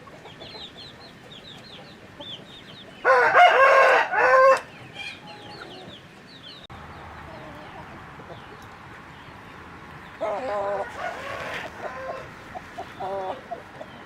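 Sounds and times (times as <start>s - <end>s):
rooster crowing: 3.0s - 4.7s, 10.3s - 12.4s.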